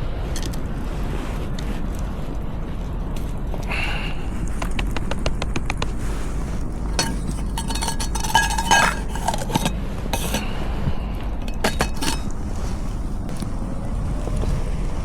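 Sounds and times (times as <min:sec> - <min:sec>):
cookware clinking and knocking: 0:07.0 - 0:10.4, 0:11.5 - 0:12.3.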